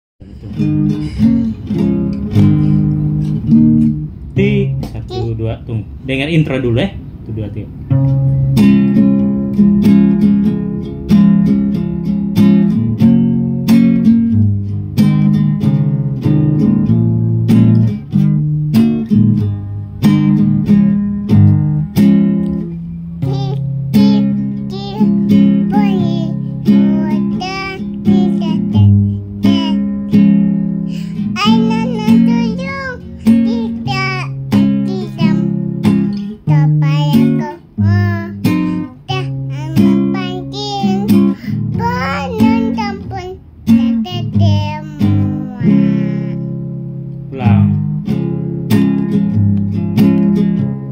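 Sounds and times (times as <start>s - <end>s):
acoustic guitar strumming chords: 0.2s - 5.4s, 7.7s - 50.9s
person singing with vibrato: 23.2s - 29.8s, 30.9s - 46.5s.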